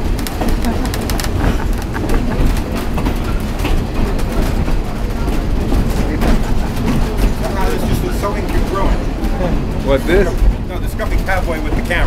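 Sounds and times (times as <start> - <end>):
clicks and rattles: 0.0 - 12.0
railroad car rolling on rails: 0.0 - 12.0.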